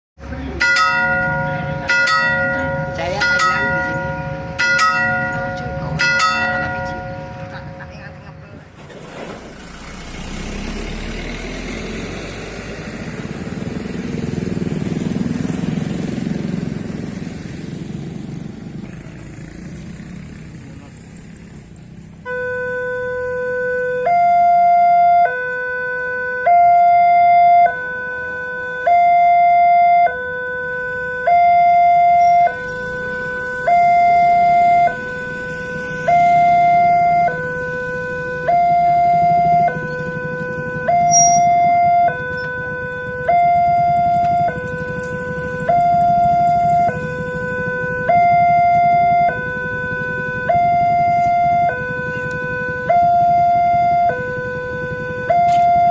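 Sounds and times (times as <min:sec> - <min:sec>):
two-tone electronic warning siren: 0:00.2 - 0:07.8, 0:22.2 - 0:55.9.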